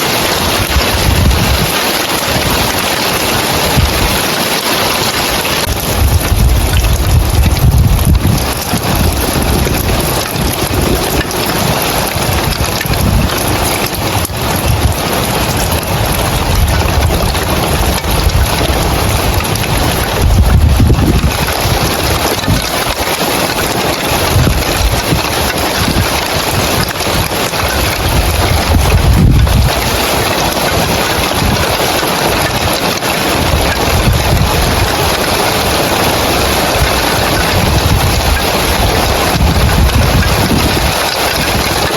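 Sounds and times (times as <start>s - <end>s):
rain on roof tiles: 0.0s - 41.9s
wind buffeting microphone: 0.0s - 41.9s
low rumbling: 5.6s - 22.5s.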